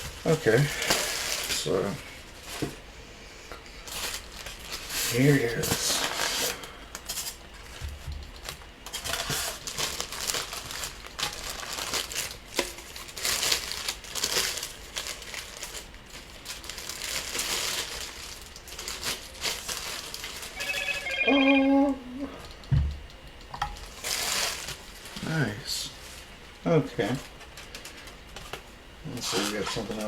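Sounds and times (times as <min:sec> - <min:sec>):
packaging crinkling: 0:03.9 - 0:21.2, 0:23.8 - 0:25.3.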